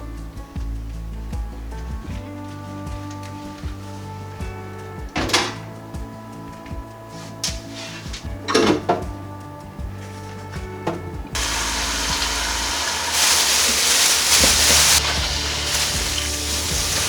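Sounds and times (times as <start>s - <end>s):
background music: 0.0s - 17.0s
food sizzling in frying pan: 11.4s - 17.0s.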